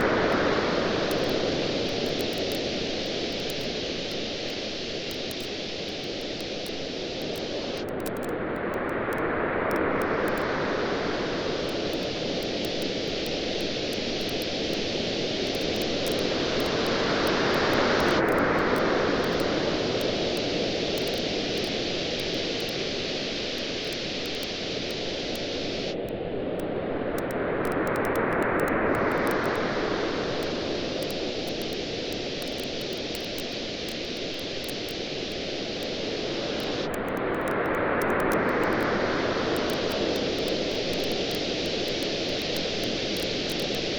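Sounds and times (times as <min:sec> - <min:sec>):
waves washing on a beach: 0:00.0 - 0:07.9, 0:08.5 - 0:43.9
bonfire crackling: 0:11.5 - 0:25.8, 0:39.7 - 0:43.9.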